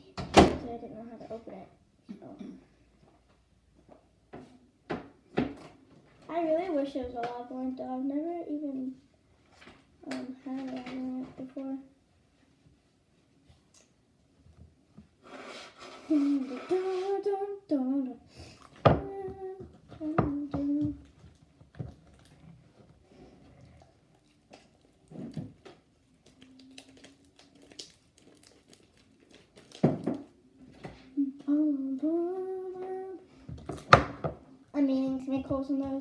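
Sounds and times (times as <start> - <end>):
child humming: 16.0 - 18.0, 18.9 - 21.1.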